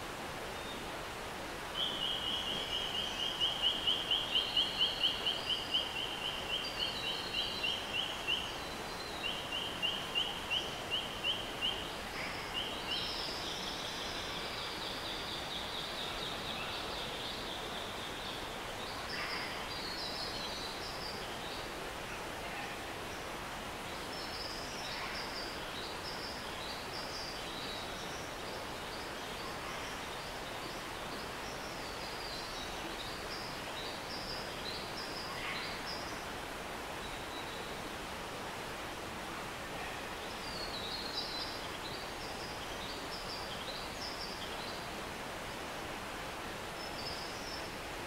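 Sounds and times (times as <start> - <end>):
stream flowing: 0.0 - 48.0.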